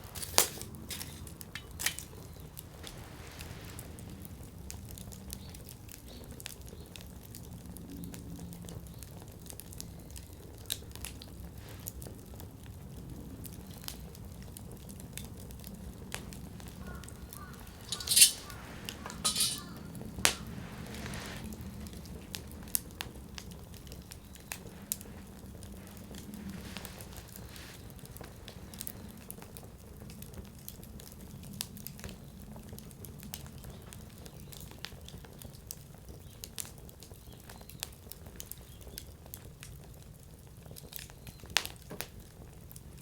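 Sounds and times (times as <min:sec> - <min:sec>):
fire popping: 0:00.0 - 0:06.2, 0:14.9 - 0:29.5
campfire crackling: 0:00.0 - 0:07.5, 0:08.9 - 0:37.2
low rumble of flame: 0:00.0 - 0:43.0.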